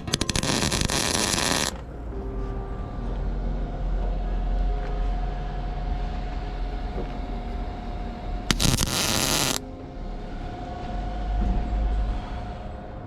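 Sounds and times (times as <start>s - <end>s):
arc welding crackling hiss: 0.0s - 1.8s, 8.5s - 9.6s.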